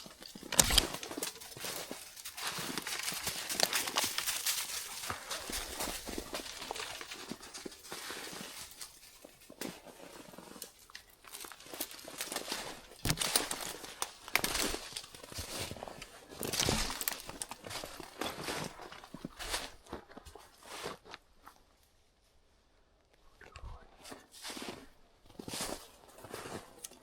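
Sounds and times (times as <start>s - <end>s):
footsteps crunching dry leaves: 0.0s - 19.9s.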